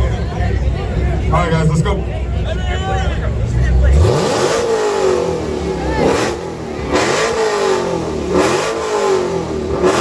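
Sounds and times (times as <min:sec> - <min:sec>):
car engine revving: 0:03.2 - 0:10.0.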